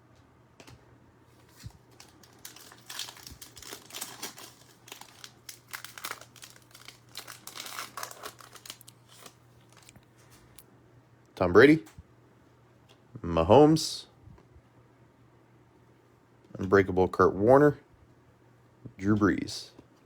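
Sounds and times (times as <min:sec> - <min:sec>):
plastic wrapper crinkling and tearing: 0:01.4 - 0:10.6.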